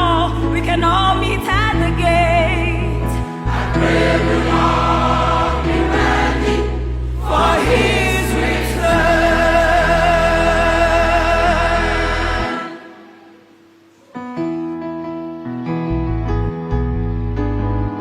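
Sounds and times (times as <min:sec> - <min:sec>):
held bass notes: 0:01.2 - 0:12.6
choir singing gospel: 0:03.1 - 0:13.5.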